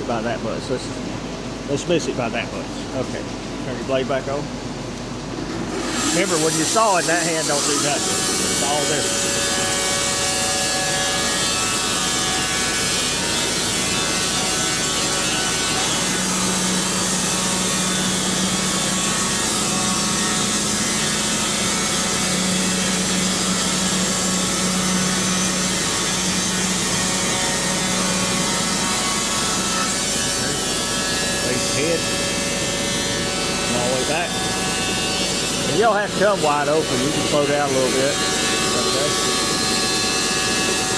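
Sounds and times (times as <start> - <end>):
steady low hum: 0.0 - 40.9
band saw cutting log: 5.4 - 40.9.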